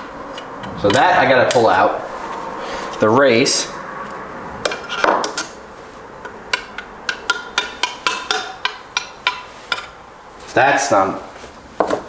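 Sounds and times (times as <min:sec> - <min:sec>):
hammer tapping metal on metal: 0:06.2 - 0:09.9.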